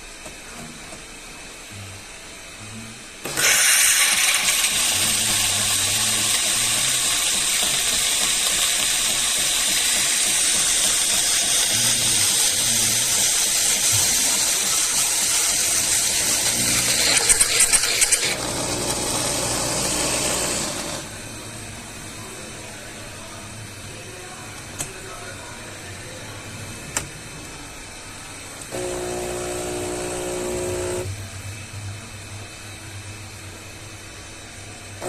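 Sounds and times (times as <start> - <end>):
machine running low: 1.5 - 22.4, 28.3 - 35.0
coffee grinder whirring: 3.3 - 21.1, 28.7 - 31.1.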